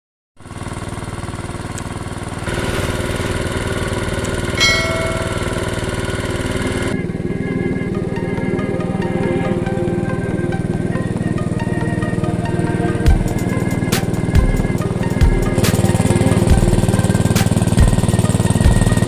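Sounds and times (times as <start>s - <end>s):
diesel engine driving pump: 0.4s - 19.0s
metallic ring: 2.5s - 6.9s.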